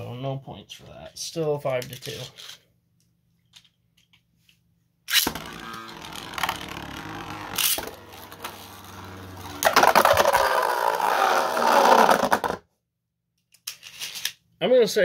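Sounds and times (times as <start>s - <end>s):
spinning tops whirring: 5.1s - 12.6s.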